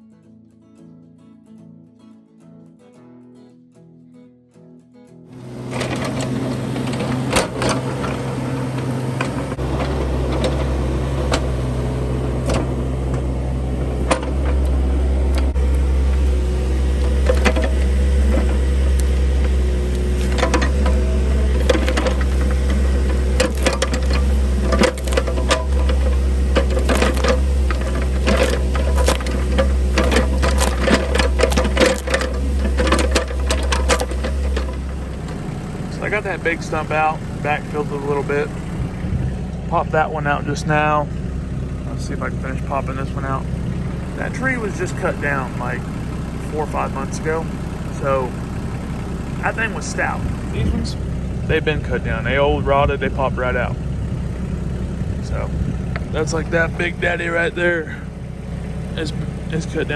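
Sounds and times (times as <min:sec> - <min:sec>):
excavator diesel engine running: 0:05.4 - 0:59.9
machine clanks and knocks: 0:05.6 - 0:13.2, 0:13.8 - 0:38.4.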